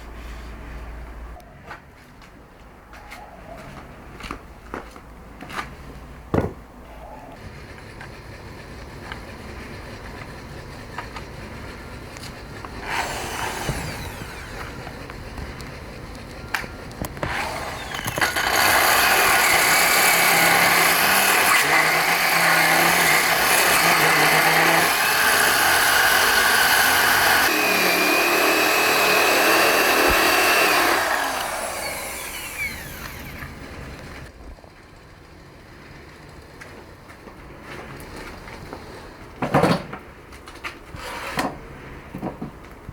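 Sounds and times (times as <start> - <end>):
power tool whining against stone: 7.5 - 33.7.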